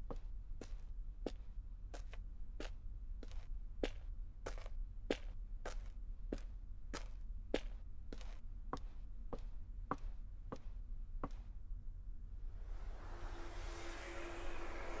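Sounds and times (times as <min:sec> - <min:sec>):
low steady hum: 0:11.5 - 0:15.0.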